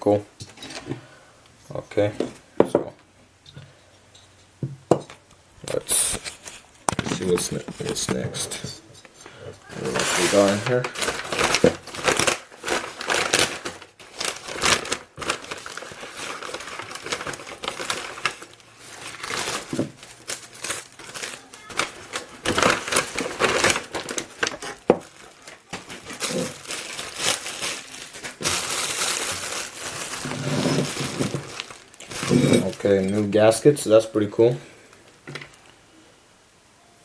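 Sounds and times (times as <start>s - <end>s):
packaging crinkling and rustling: 5.6s - 34.0s.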